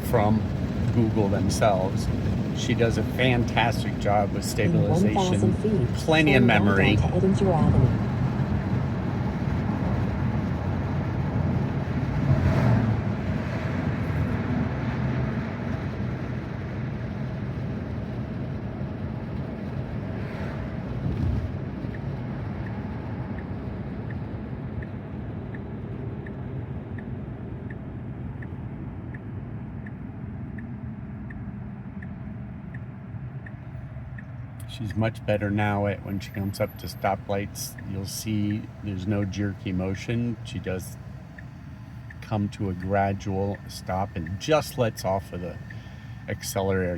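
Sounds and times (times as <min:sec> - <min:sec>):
road and tyre noise in car: 0:00.0 - 0:46.9
turn signal ticking: 0:21.1 - 0:46.9.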